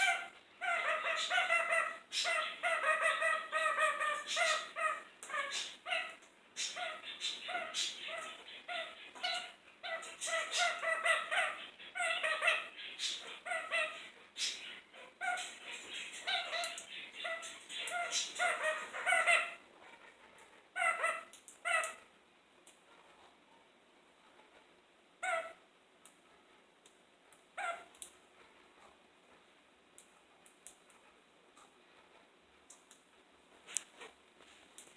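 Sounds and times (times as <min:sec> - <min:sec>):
parakeet chattering calls: 0:00.0 - 0:19.6, 0:20.7 - 0:22.0.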